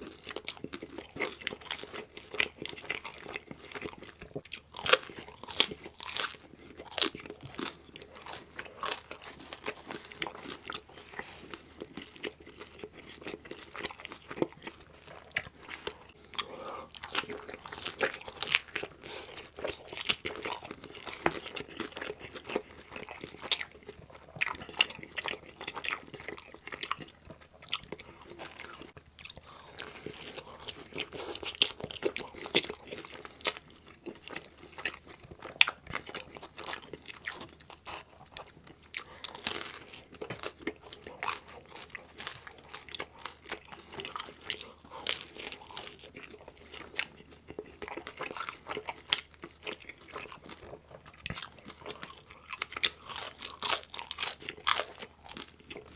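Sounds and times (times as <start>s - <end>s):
chewing and crunching pizza: 0.0s - 55.9s.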